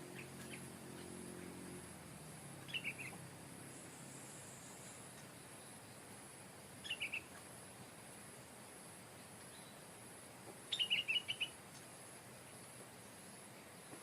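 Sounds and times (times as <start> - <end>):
bird singing: 0.0 - 2.0, 2.6 - 6.1, 6.8 - 8.0, 9.5 - 9.9, 10.7 - 11.8.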